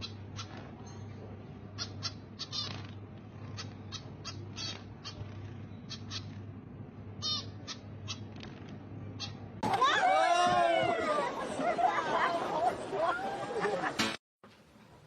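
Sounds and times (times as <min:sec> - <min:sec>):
steady low hum: 0:00.0 - 0:09.6
bird chirping: 0:01.8 - 0:06.4, 0:07.2 - 0:08.3.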